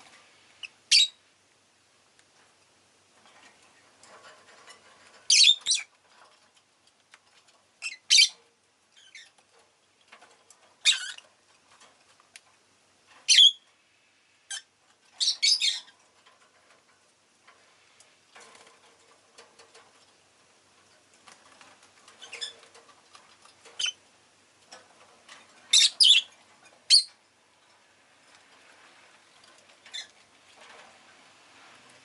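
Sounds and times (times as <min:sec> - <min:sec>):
lovebird chirping: 0:00.6 - 0:01.2, 0:05.3 - 0:05.9, 0:07.8 - 0:08.4, 0:10.8 - 0:11.2, 0:13.3 - 0:13.6, 0:14.5 - 0:15.9, 0:23.8 - 0:24.0, 0:25.7 - 0:26.3, 0:26.9 - 0:27.1
soft scratching and rustling: 0:02.1 - 0:32.0.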